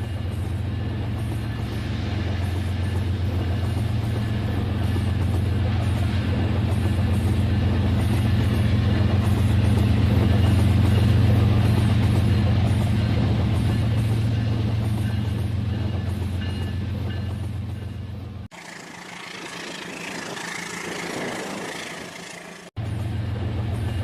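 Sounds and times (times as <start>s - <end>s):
model train motor hum: 18.5s - 22.7s.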